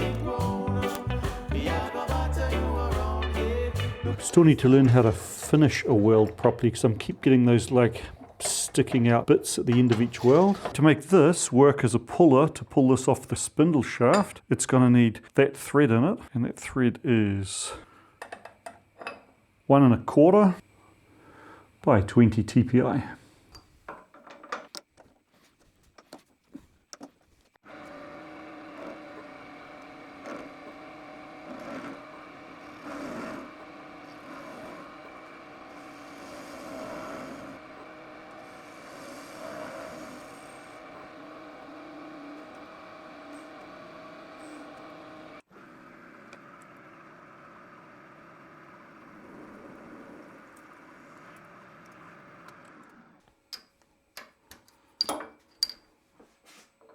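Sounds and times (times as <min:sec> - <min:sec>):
metal lathe machining steel: 0:03.8 - 0:11.4, 0:27.7 - 0:53.0.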